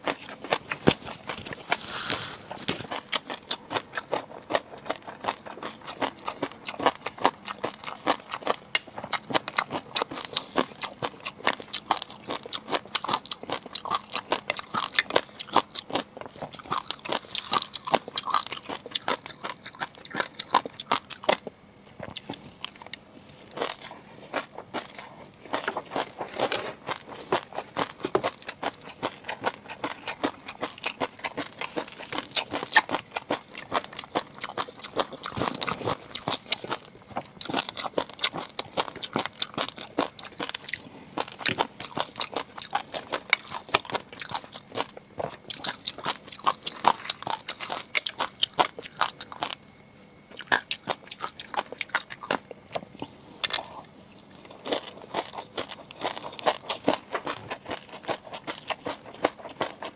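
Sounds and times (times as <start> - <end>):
crunchy chewing and biting: 0.0 - 59.9.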